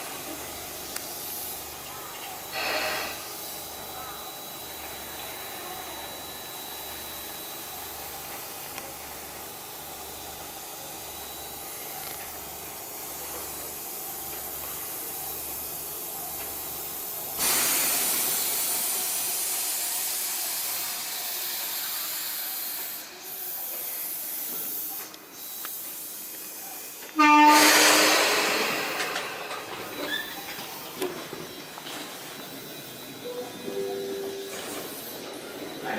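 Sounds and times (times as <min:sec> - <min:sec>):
train low hum: 0:00.0 - 0:35.9
loud hiss: 0:02.5 - 0:03.6, 0:17.2 - 0:24.7, 0:27.2 - 0:29.7
train horn blast: 0:27.2 - 0:28.6.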